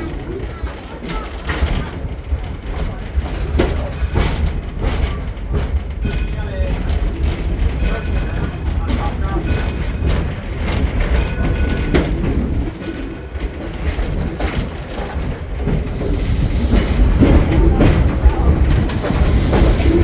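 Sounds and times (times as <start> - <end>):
train cars rumbling on track: 0.0 - 20.0
steam hiss: 13.8 - 20.0.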